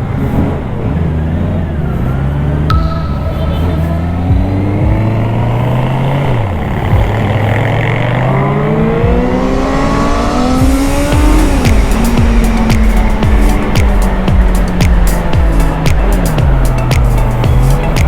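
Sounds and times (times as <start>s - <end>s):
motorcycle engine accelerating: 0.5s - 18.0s
music with steady beat: 2.7s - 6.0s, 6.9s - 7.5s, 8.9s - 18.0s.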